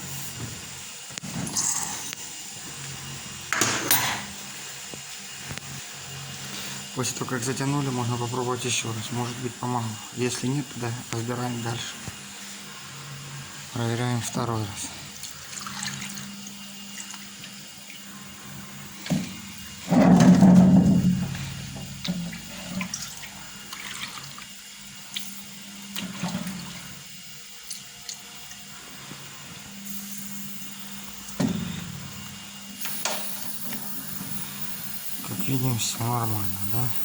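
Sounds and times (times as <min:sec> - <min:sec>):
compressed air gushing: 0:01.2 - 0:02.4, 0:28.8 - 0:37.0
steady low hum: 0:06.5 - 0:27.5.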